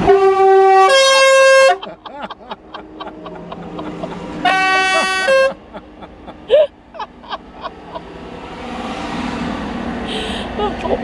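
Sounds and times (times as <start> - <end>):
vehicle horn blast: 0.0 - 1.8, 4.4 - 5.6.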